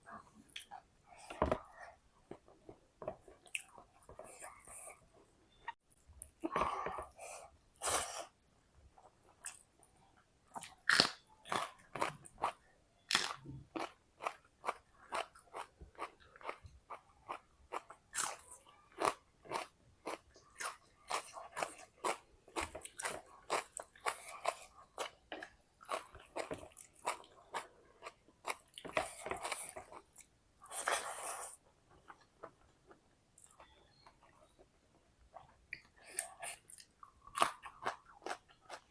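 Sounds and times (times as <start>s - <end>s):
chewing and crunching crisp food: 8.9s - 38.9s.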